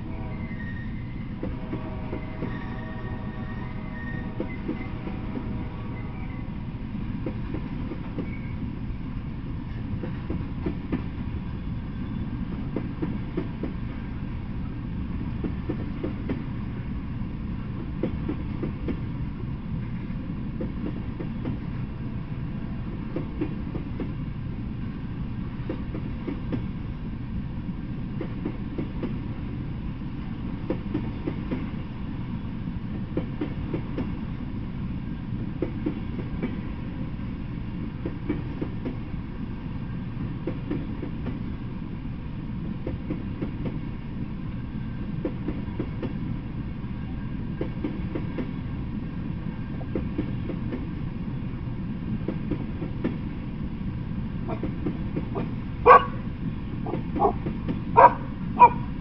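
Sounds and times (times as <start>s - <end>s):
freight train rumbling: 0.0s - 59.0s
wheels clacking over rail joints: 56.8s - 58.8s.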